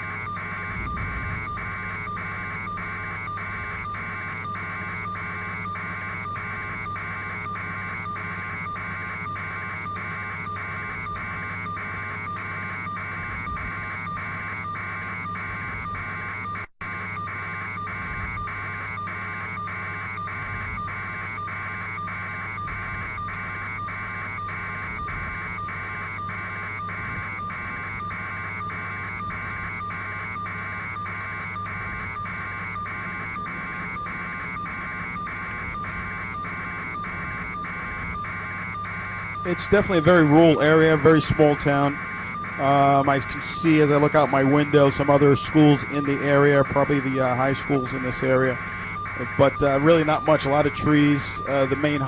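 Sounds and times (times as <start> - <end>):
electronic beeping: 0.0 - 52.0
steady low hum: 0.0 - 52.0.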